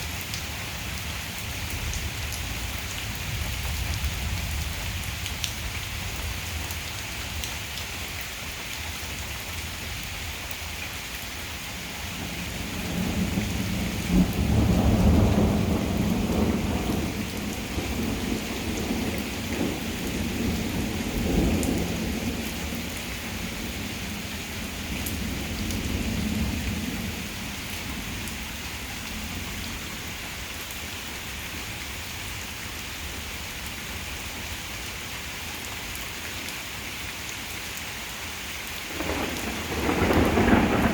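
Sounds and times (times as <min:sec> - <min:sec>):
heavy rain falling: 0:00.0 - 0:40.9
rolling thunder: 0:12.2 - 0:24.2, 0:38.9 - 0:40.9.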